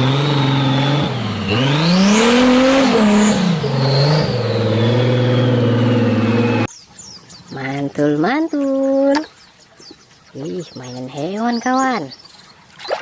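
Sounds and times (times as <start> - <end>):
car engine revving: 0.0 - 6.7.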